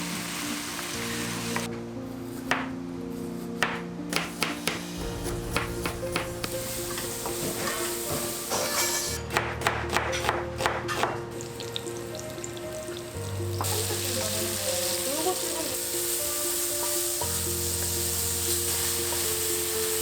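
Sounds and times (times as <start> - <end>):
food sizzling in hot oil: 0.0 - 1.7, 4.8 - 9.2, 11.4 - 20.0.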